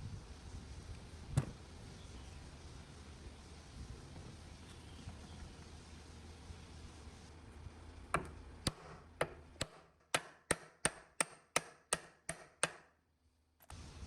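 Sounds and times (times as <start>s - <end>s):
hammer striking with ring: 8.2s - 13.0s.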